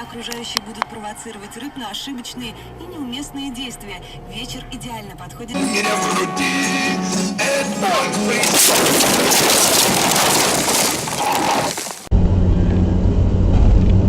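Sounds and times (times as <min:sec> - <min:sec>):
car engine hum and road noise: 0:00.0 - 0:06.1
car crash: 0:05.6 - 0:12.1.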